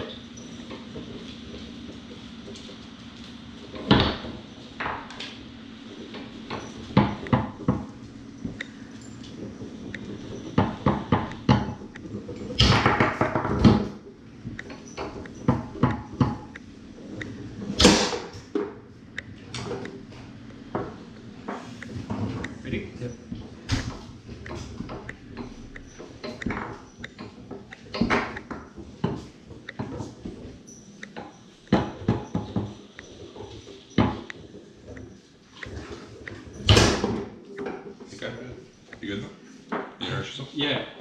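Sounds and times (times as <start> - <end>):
foosball ball clacking: 6.0 - 22.6, 23.3 - 38.1.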